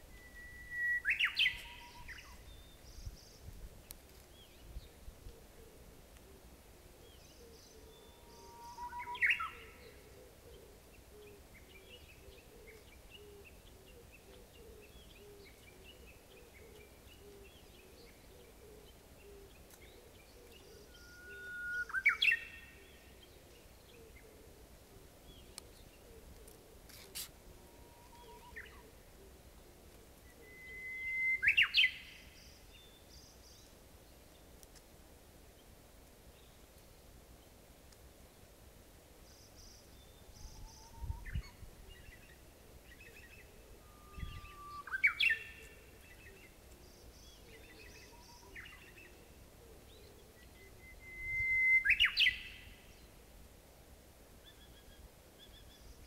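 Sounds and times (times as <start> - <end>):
bird whistling song with flourish: 0.0 - 2.8, 8.0 - 9.9, 20.8 - 22.8, 30.3 - 33.0, 43.1 - 46.4, 50.4 - 52.8.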